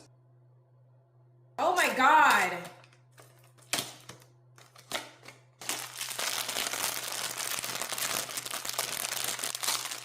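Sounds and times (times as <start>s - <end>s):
packaging rustling: 3.2s - 10.0s
wrapping crinkling: 4.6s - 10.0s.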